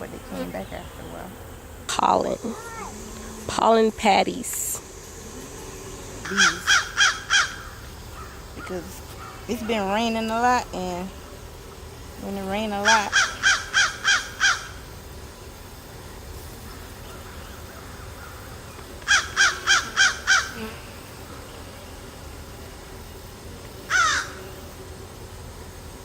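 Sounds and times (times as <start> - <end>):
crow cawing: 6.2 - 8.4, 12.9 - 14.8, 17.1 - 20.6, 23.9 - 24.4.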